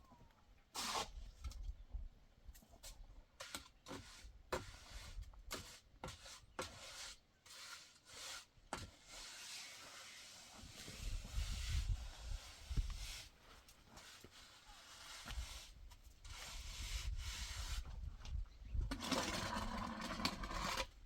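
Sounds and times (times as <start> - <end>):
sharp knocks and scrapes: 2.8 - 11.9, 18.8 - 21.0.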